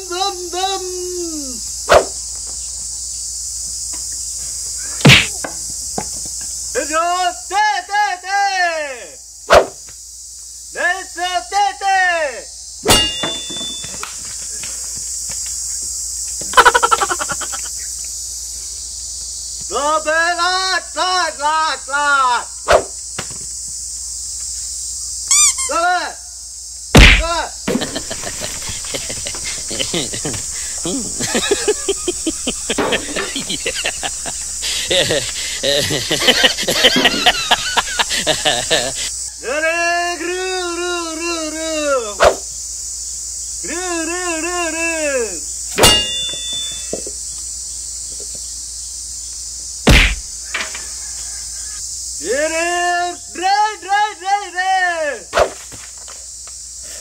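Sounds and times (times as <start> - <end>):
insects buzzing: 0.0 - 57.0
heavy thud: 5.0 - 5.4, 12.9 - 14.0, 27.0 - 30.9, 49.9 - 50.4
sharp smack with ring: 5.0 - 5.4, 12.8 - 14.1, 27.0 - 27.3, 45.8 - 47.0, 49.9 - 50.3
loud thump: 5.0 - 5.5, 12.8 - 14.0, 27.0 - 30.6, 49.9 - 50.3.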